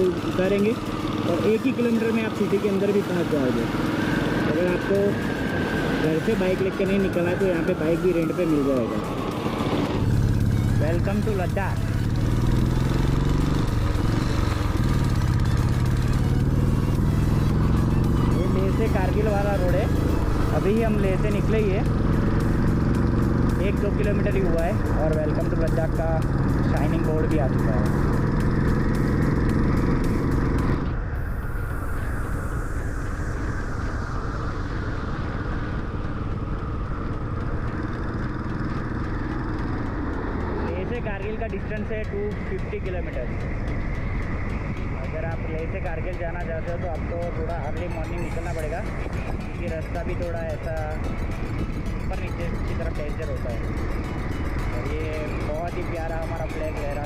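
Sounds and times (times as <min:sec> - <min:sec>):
motorcycle engine running: 0:00.0 - 0:57.0
road noise: 0:00.0 - 0:57.0
wind rush: 0:30.8 - 0:38.1.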